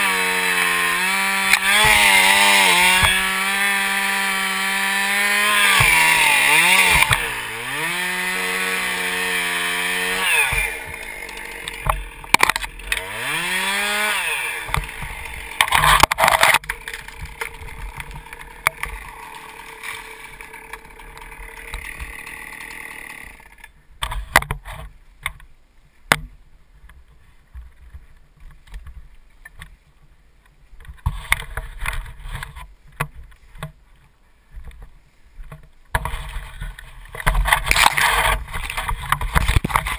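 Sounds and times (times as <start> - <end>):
chainsaw cutting wood: 0.0 - 24.5, 36.0 - 39.9
knocks and rustles: 34.6 - 39.9.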